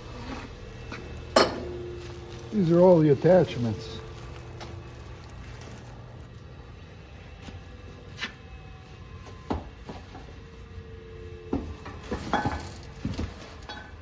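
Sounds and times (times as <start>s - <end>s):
knocks and clinks of handled parts: 11.6s - 14.0s.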